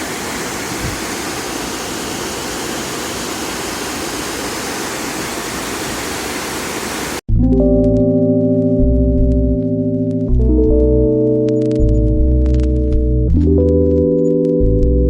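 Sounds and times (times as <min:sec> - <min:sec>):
flowing water rushing: 0:00.0 - 0:07.2
music with ringing tones: 0:07.3 - 0:15.0.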